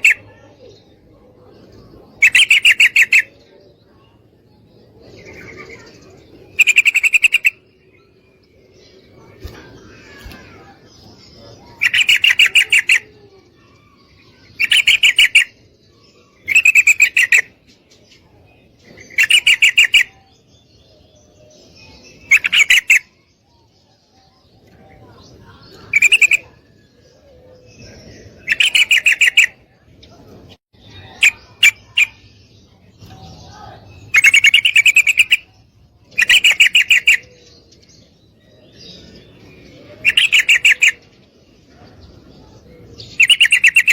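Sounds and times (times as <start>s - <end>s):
bird chattering call: 0.0s - 0.4s, 2.2s - 3.4s, 5.2s - 7.6s, 11.6s - 15.6s, 16.3s - 17.6s, 19.0s - 20.3s, 22.2s - 23.2s, 25.7s - 26.7s, 28.3s - 29.6s, 30.9s - 32.3s, 34.0s - 37.5s, 39.8s - 41.0s, 43.0s - 43.9s.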